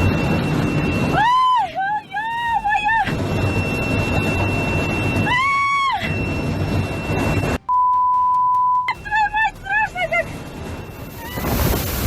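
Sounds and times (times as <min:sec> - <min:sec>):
censor bleep tone: 0:06.2 - 0:08.9
loud rushing noise: 0:10.6 - 0:12.0.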